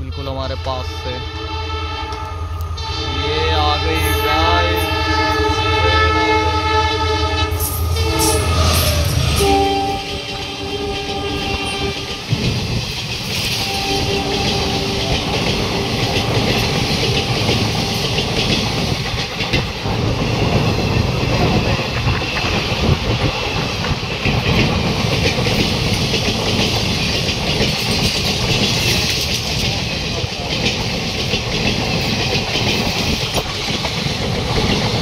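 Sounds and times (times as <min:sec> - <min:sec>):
train horn: 0:00.0 - 0:12.5, 0:13.4 - 0:18.6
train wheels clattering on rails: 0:07.5 - 0:35.0.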